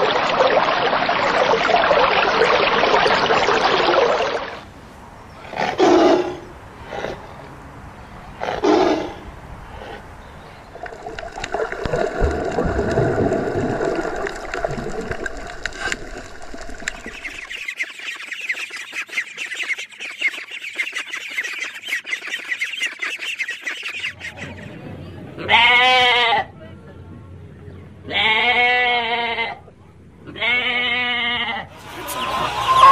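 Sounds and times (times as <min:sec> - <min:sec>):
ducklings peeping: 0:16.9 - 0:24.7.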